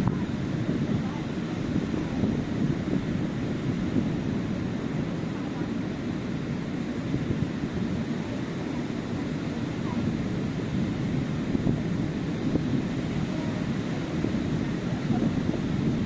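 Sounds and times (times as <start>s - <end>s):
surf washing onto beach: 0.0s - 16.0s
wind buffeting microphone: 0.0s - 16.0s.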